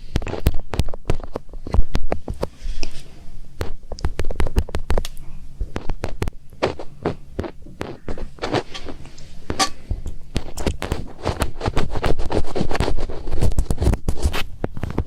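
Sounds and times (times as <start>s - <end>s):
fingertips scratching microphone: 5.6s - 15.0s.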